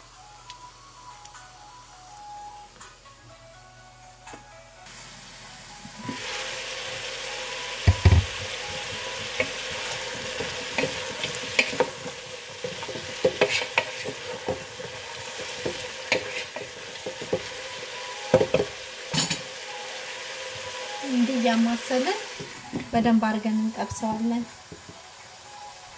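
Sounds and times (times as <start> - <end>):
vegetables sizzling in oil: 4.9 - 25.9
wooden spoon knocking and scraping pot: 7.8 - 17.6, 18.3 - 19.4.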